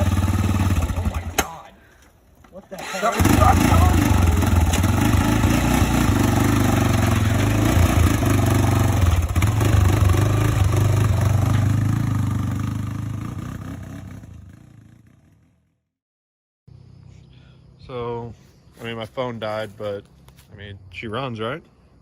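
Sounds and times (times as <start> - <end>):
atv engine running hard: 0.0 - 1.4, 2.8 - 15.4.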